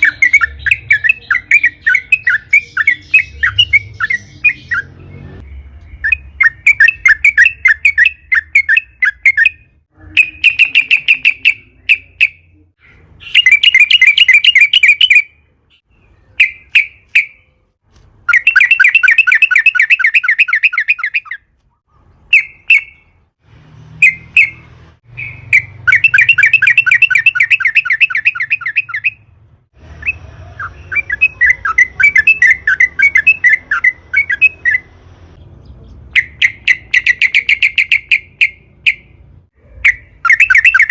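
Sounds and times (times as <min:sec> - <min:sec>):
bird call notes: 0:00.0 - 0:12.5
bird singing chattering phrases: 0:00.0 - 0:17.5, 0:18.3 - 0:23.2, 0:24.0 - 0:29.2, 0:30.0 - 0:39.1.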